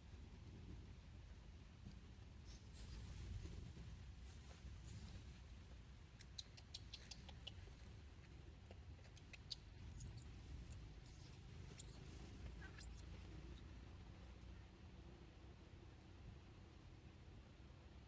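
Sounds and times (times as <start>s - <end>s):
monkey squeaking: 9.2s - 13.1s.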